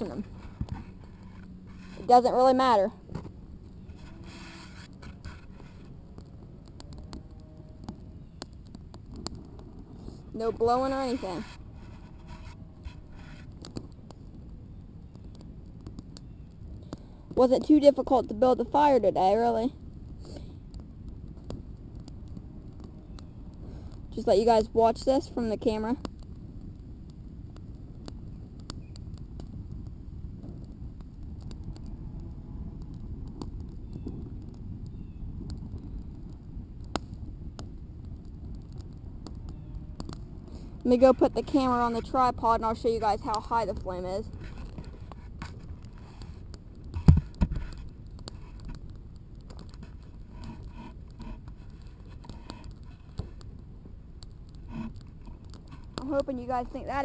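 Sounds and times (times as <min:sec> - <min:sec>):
light scrapes and clicks: 0:00.0 - 0:14.4, 0:38.4 - 0:53.6, 0:54.2 - 0:57.0
campfire crackling: 0:00.0 - 0:57.0.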